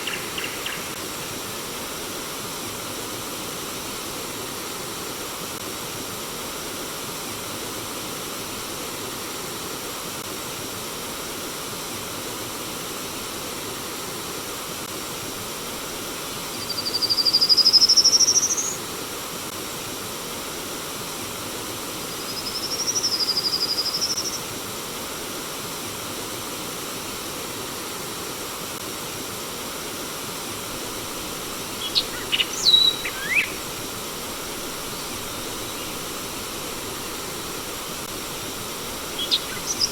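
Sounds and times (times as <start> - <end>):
stream water flowing: 24.8 - 39.9
short bird chirps: 31.8 - 33.6
bird whistling: 31.8 - 33.7, 39.1 - 39.9.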